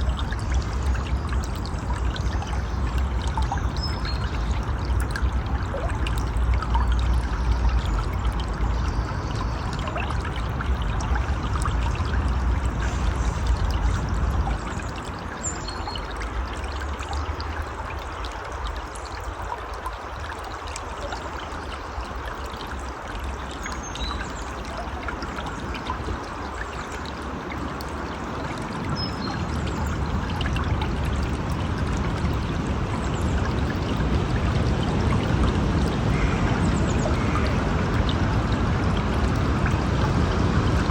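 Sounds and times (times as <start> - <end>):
river water rushing: 9.6 - 40.9.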